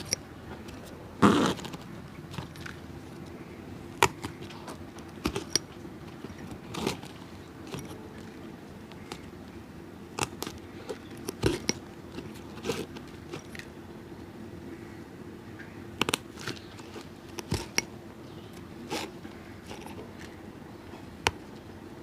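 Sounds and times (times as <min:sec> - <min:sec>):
steady low hum: 0:00.0 - 0:22.0
shoe clicks taps and crunches: 0:04.0 - 0:08.0, 0:10.2 - 0:13.7, 0:16.0 - 0:17.9.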